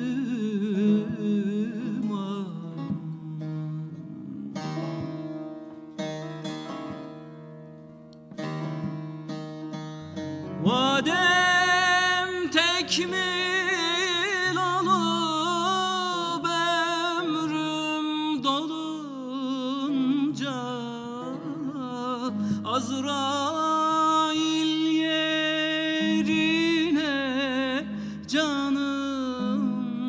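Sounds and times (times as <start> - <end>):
person singing ornamented notes: 10.6 - 30.0.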